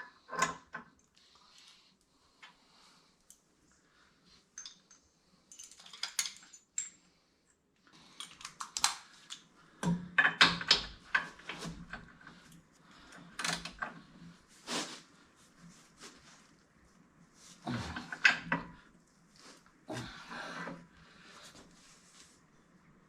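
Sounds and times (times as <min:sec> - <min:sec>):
metal parts and tools clinking: 0:04.5 - 0:07.0.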